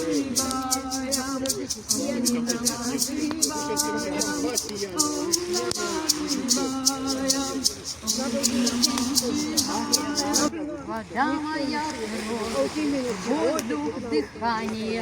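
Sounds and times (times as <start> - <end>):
hand shaker rattling: 0.0 - 10.5
person singing long held notes: 0.0 - 10.5.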